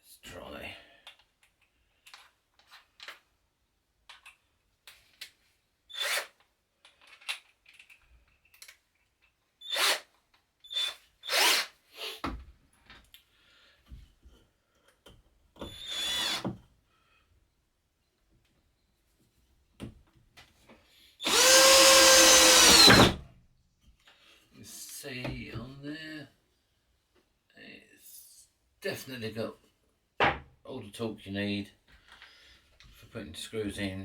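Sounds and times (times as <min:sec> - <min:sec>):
cordless drill motor whining: 0:10.6 - 0:12.2, 0:15.7 - 0:16.4, 0:21.2 - 0:23.2.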